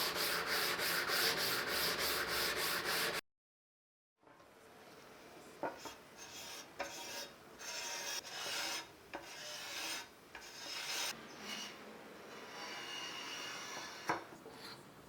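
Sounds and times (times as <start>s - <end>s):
rasping scrubbing on metal: 0.0s - 3.2s, 6.2s - 14.2s.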